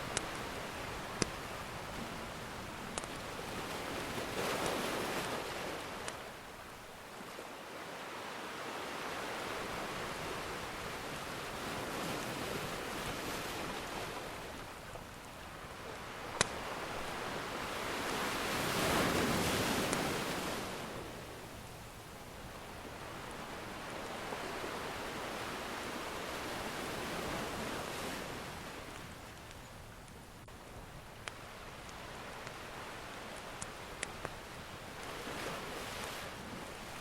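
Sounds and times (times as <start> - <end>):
wood fire crackling: 0.0 - 5.3, 14.9 - 20.4, 28.6 - 35.2
waves breaking: 0.0 - 29.6, 30.5 - 37.0
ocean surf washing in: 15.5 - 21.6, 22.8 - 29.0.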